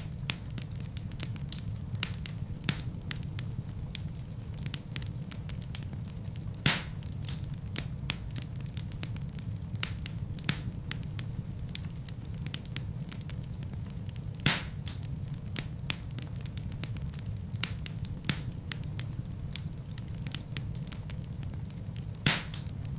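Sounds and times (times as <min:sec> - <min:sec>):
fire crackling: 0:00.0 - 0:22.9
flames rumbling: 0:00.0 - 0:22.9
loud fire pops: 0:00.0 - 0:22.9.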